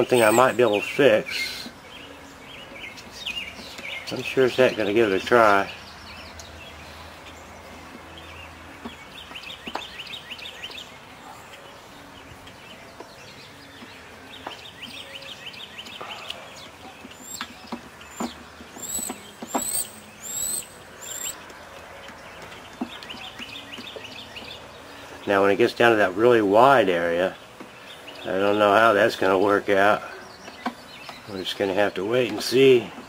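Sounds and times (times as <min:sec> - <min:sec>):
louder bird calls: 0:00.0 - 0:00.7, 0:17.2 - 0:21.4
small birds chirping: 0:00.0 - 0:33.0.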